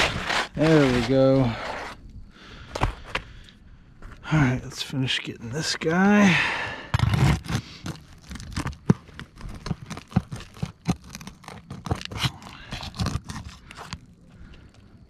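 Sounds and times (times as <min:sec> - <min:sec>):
tool scraping under roof shingle: 0:00.0 - 0:02.0, 0:06.8 - 0:14.6.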